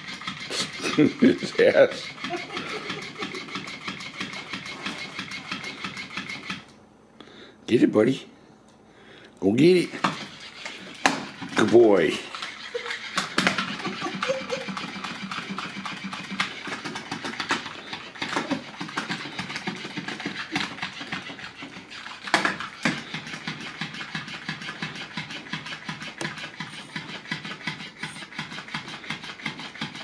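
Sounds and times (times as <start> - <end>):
toy motor buzzing: 0.0 - 6.7, 9.8 - 30.0
tail flapping on wooden floor: 9.9 - 30.0.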